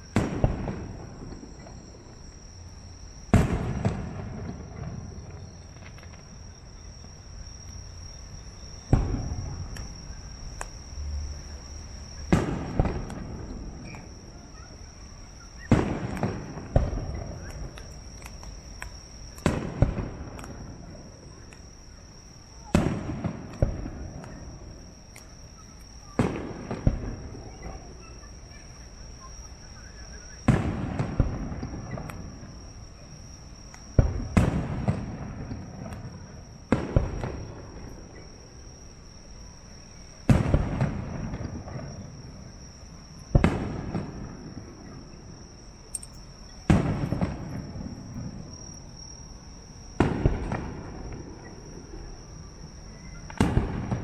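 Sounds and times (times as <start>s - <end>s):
firework shells booming: 0.0s - 2.2s, 3.2s - 6.4s, 8.7s - 10.7s, 12.2s - 14.3s, 15.5s - 21.5s, 22.6s - 25.3s, 26.1s - 28.0s, 30.4s - 32.4s, 33.7s - 38.3s, 40.2s - 42.6s, 43.2s - 49.1s, 49.8s - 52.2s, 53.0s - 54.0s.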